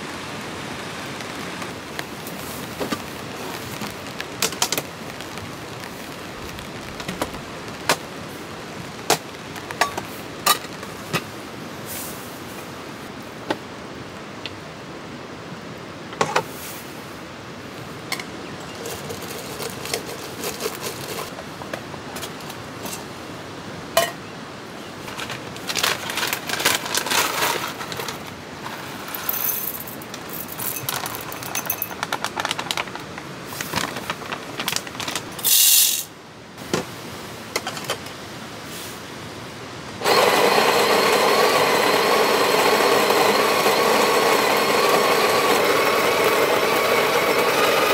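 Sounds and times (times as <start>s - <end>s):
short hiss: 35.4s - 36.1s
motor humming: 40.0s - 47.9s.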